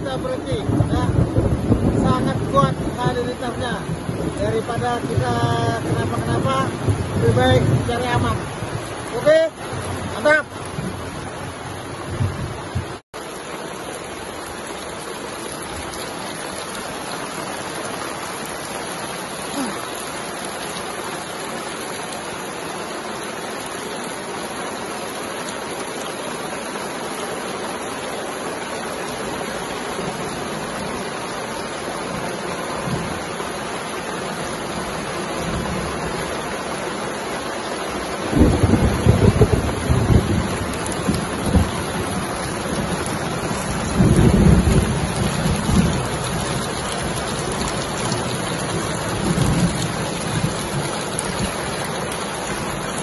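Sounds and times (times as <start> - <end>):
thunder rumbling: 0.0 - 13.0, 38.3 - 53.0
rain falling on leaves: 0.0 - 53.0.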